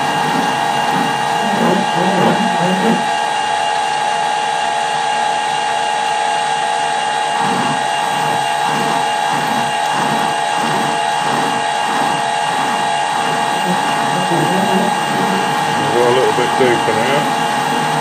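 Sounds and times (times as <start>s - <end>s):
regular mechanical pulsing: 0.0s - 3.2s, 7.4s - 18.0s
lathe motor whine: 0.0s - 18.0s.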